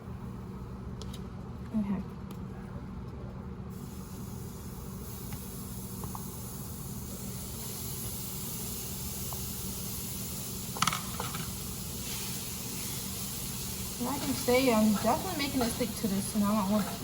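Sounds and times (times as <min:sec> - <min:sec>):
meat sizzling in a pot: 0:03.8 - 0:17.0.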